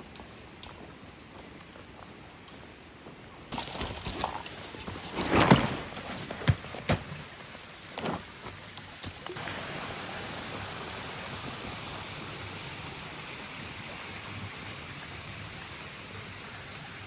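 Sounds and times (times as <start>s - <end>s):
knocks and rustles: 3.6s - 7.3s
stream rushing: 3.8s - 17.0s.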